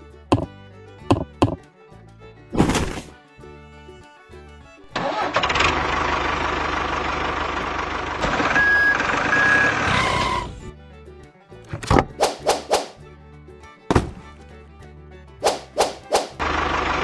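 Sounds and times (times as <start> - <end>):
truck engine running: 0.1 - 2.4, 3.5 - 11.0, 13.9 - 17.0
reversing beeps: 8.4 - 10.5.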